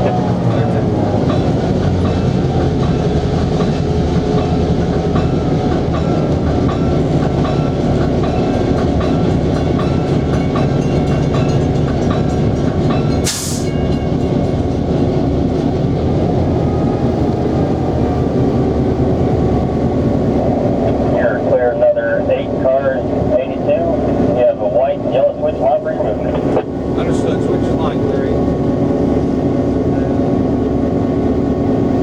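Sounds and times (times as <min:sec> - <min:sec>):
diesel locomotive engine running: 0:00.0 - 0:32.0
sharp hiss: 0:13.2 - 0:13.7.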